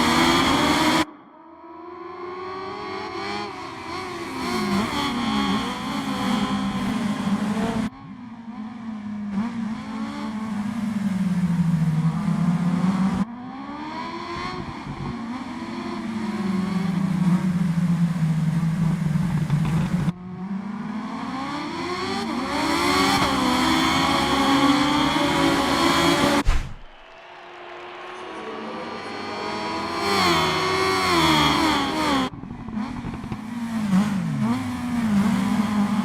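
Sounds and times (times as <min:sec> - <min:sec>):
motorcycle engine revving: 0:00.0 - 0:01.1, 0:01.7 - 0:26.4, 0:28.3 - 0:36.0.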